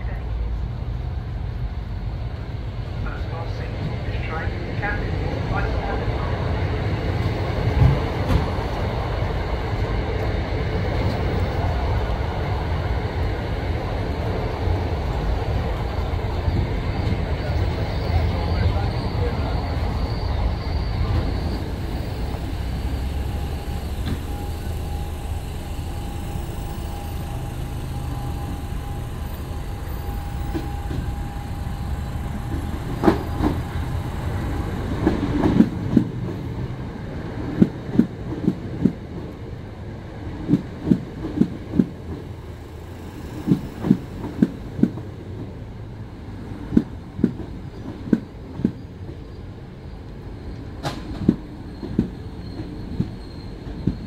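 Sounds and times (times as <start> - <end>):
train rumble with thin whine: 0.0 - 54.0
train wheels clicking over rail joints: 32.2 - 36.5, 50.5 - 54.0.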